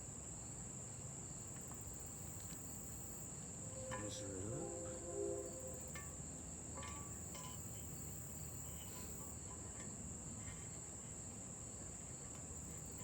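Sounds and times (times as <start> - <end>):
crickets chirping: 0.4 - 10.6.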